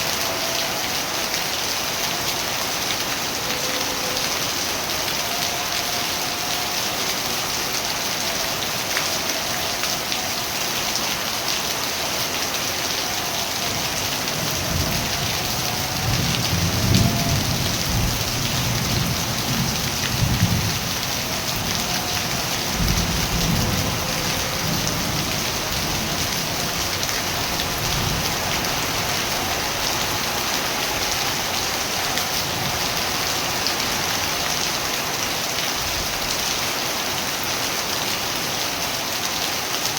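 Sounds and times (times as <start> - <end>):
steady rain falling: 0.0 - 39.9
low rolls of thunder: 14.3 - 29.5.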